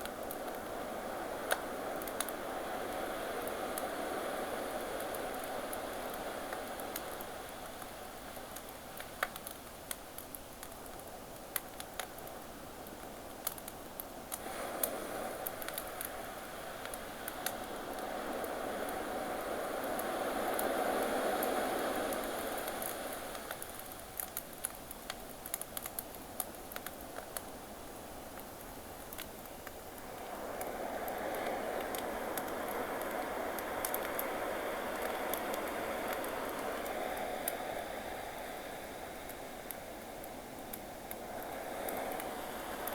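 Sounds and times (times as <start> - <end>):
campfire crackling and popping: 1.4 - 3.9, 4.6 - 16.2, 16.8 - 19.1, 21.7 - 37.6, 39.2 - 42.9
ocean waves: 14.4 - 23.8, 29.9 - 42.9.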